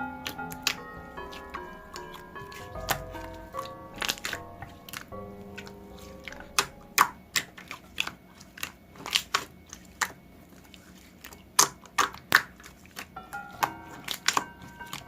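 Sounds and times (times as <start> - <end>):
faint background music: 0.0 - 15.0
slime popping and clicking: 0.2 - 10.2, 11.6 - 15.0.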